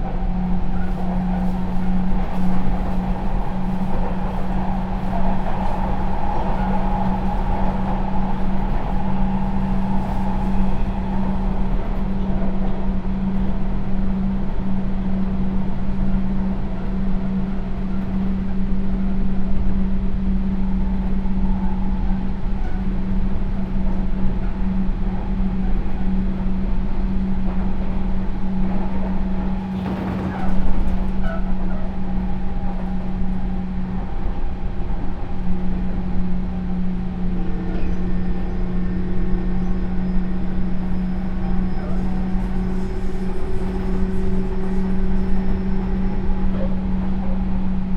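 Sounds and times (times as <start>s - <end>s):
train motor and gear hum: 0.0s - 47.9s
wheel and track noise: 27.3s - 47.9s.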